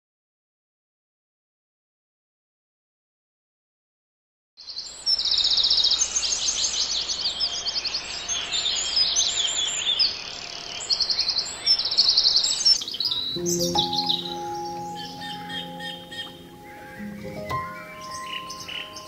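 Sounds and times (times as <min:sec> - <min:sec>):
songbirds singing and chirping: 0:04.6 - 0:19.0
steady outdoor hiss: 0:04.6 - 0:19.0.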